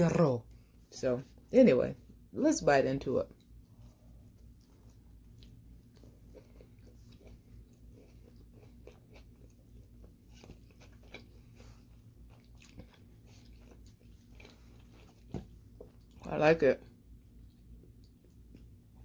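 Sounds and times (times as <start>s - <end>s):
person chewing food: 3.3s - 16.3s, 16.9s - 19.0s.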